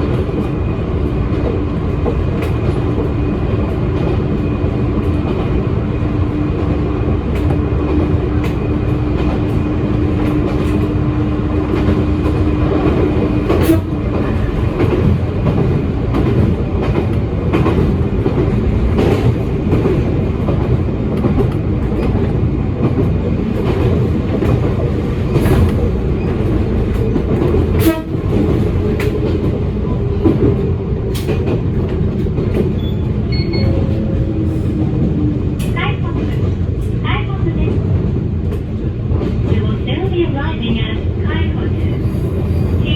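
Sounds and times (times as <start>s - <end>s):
electric train rumble: 0.0s - 42.9s.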